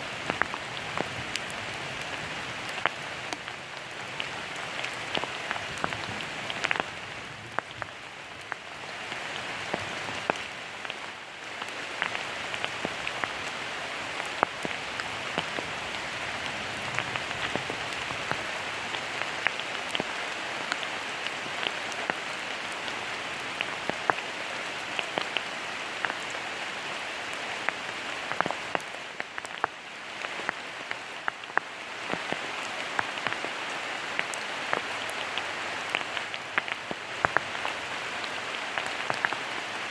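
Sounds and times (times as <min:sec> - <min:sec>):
rain drops pattering: 0:00.0 - 0:39.9.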